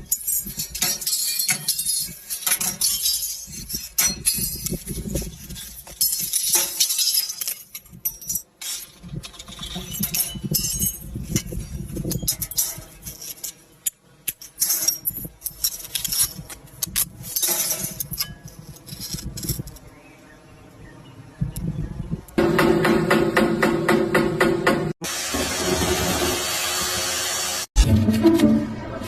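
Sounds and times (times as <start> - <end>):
objects clinking and crunching: 0.0 - 19.9.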